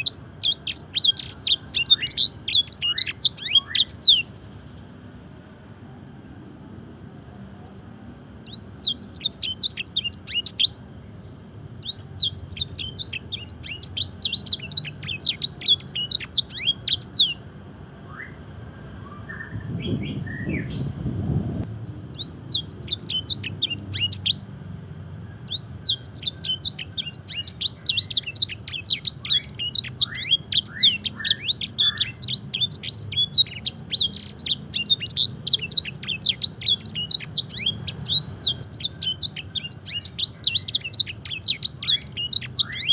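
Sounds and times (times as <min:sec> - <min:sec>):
canary singing trills: 0:00.0 - 0:05.0, 0:08.4 - 0:17.4, 0:21.8 - 0:24.6, 0:25.2 - 0:42.9
low rumble: 0:19.0 - 0:22.4.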